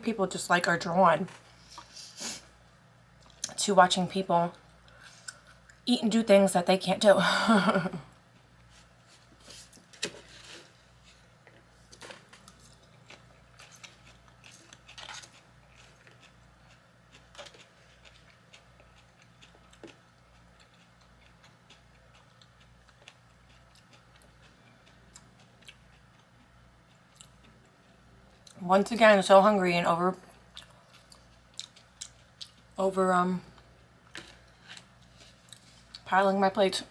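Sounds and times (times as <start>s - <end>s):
low steady hum: 0.0s - 36.9s
chewing: 11.1s - 28.6s, 30.5s - 32.8s.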